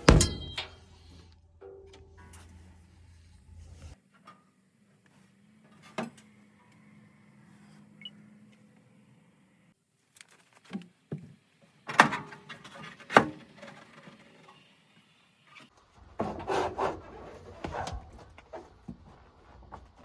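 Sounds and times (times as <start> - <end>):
sharp knocks: 0.0 - 0.8
scraping and rubbing: 2.0 - 4.0.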